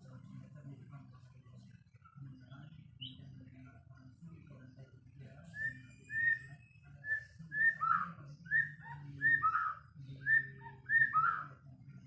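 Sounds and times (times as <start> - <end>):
bird singing whistled notes: 3.0 - 3.3, 5.5 - 11.5.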